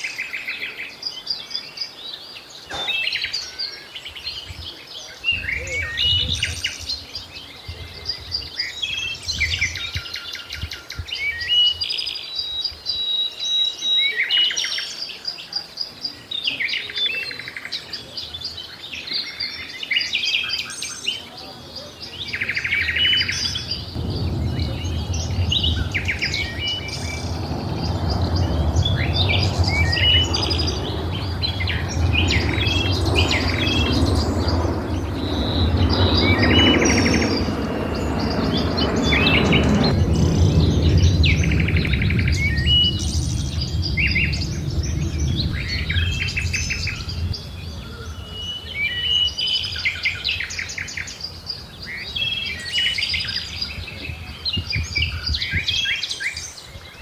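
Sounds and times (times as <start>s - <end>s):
birds chirping and singing: 0.0s - 57.0s
low rumbling background noise: 20.9s - 57.0s.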